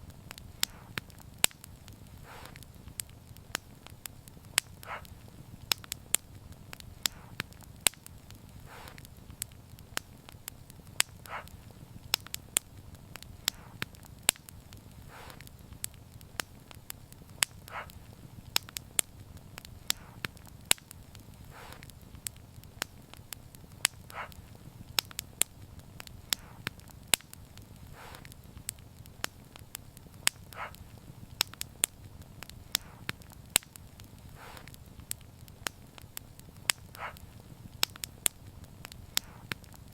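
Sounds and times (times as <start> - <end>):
fire crackling and popping: 0.0 - 39.9
flames rumbling: 0.0 - 39.9
soft puff: 0.6 - 1.0, 2.2 - 2.6, 4.8 - 5.1, 7.0 - 7.4, 8.6 - 9.1, 13.5 - 13.8, 15.0 - 15.5, 19.9 - 20.2, 21.5 - 21.9, 26.3 - 26.7, 27.9 - 28.4, 34.3 - 34.8.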